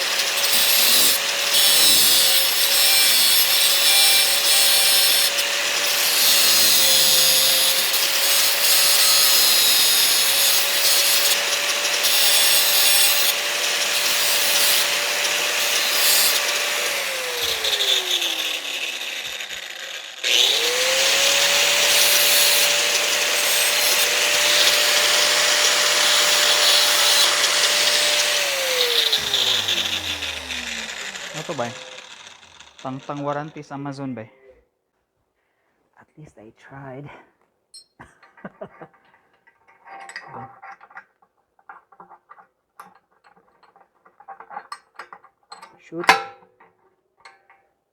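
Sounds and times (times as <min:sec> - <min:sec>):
power tool grinding metal: 0:00.0 - 0:34.0.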